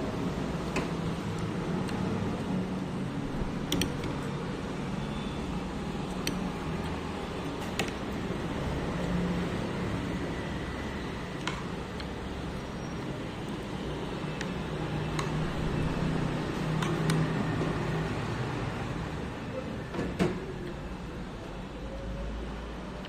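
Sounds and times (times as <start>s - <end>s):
street traffic hum: 0.0s - 23.0s
sharp clicks: 3.6s - 4.3s, 6.0s - 6.9s, 14.4s - 15.6s.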